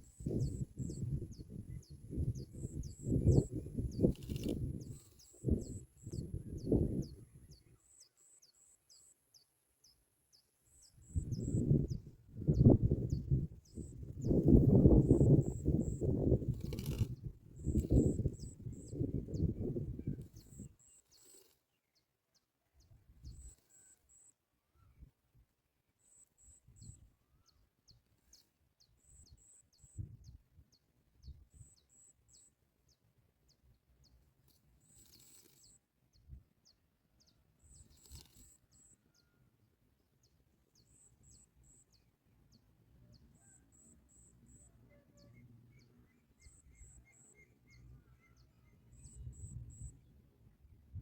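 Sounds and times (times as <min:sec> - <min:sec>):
high thin bird chirps: 0:00.0 - 0:07.2, 0:10.7 - 0:21.6, 0:34.6 - 0:36.3, 0:37.6 - 0:39.2.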